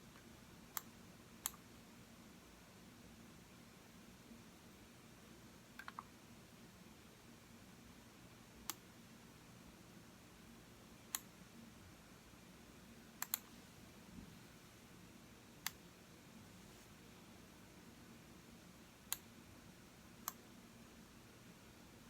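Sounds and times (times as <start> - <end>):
faint room hum: 0.0 - 22.0
computer mouse button clicking: 13.2 - 13.5.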